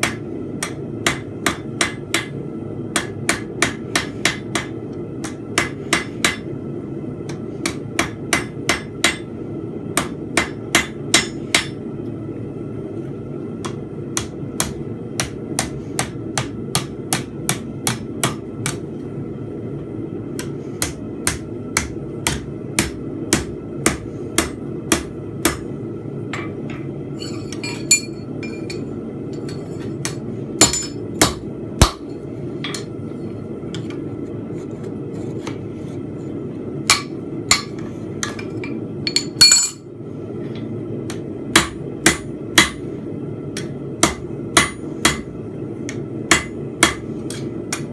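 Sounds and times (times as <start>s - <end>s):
hammer striking steel on anvil: 0.0s - 6.5s, 7.3s - 9.3s, 10.0s - 11.8s, 20.4s - 25.7s, 26.3s - 32.9s, 36.8s - 39.8s, 41.1s - 42.9s, 43.6s - 47.9s.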